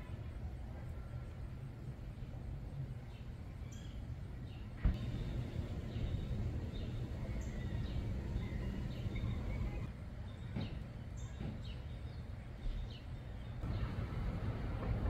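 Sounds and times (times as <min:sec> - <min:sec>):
wild birds chirping: 0:02.1 - 0:15.0
steady low rumble: 0:04.8 - 0:10.0, 0:13.6 - 0:15.0.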